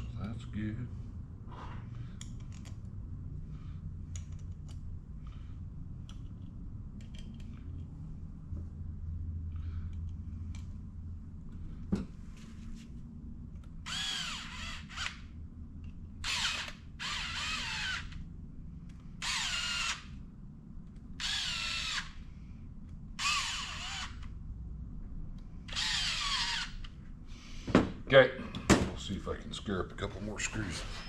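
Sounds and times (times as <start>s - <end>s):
cordless drill whine: 13.8s - 15.2s, 16.2s - 18.2s, 19.2s - 20.2s, 21.2s - 22.2s, 23.2s - 24.3s, 25.7s - 26.9s.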